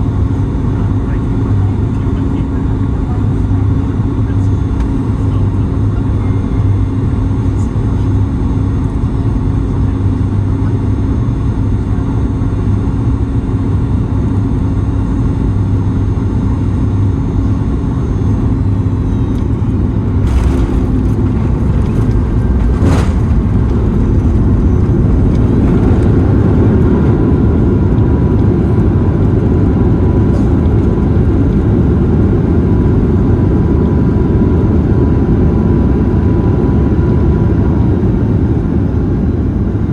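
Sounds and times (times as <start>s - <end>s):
airliner cabin engine hum: 0.0s - 39.9s.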